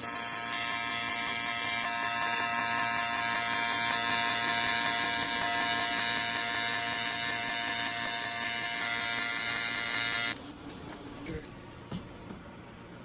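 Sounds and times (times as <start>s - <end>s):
welding arc buzzing: 0.0s - 10.4s.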